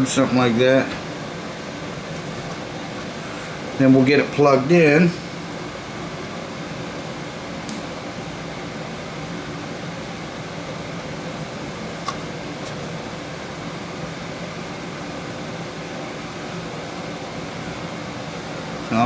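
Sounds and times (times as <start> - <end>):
background hum and hiss: 0.0 - 19.0.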